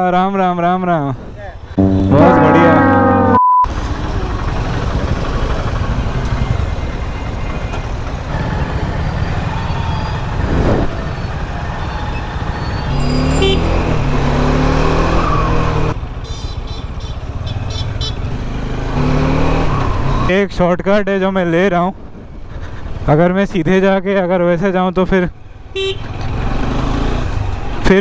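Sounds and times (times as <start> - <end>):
surrounding traffic engines: 0.0 - 28.0
motorcycle engine at low speed: 3.7 - 9.6.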